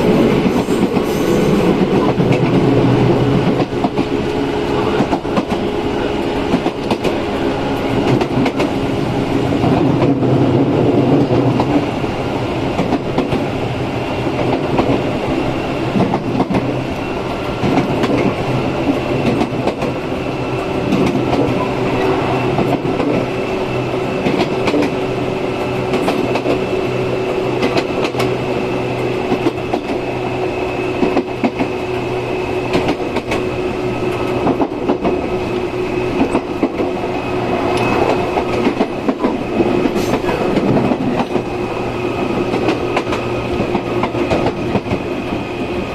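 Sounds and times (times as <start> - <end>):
electric train motor hum and whine: 0.0 - 9.6.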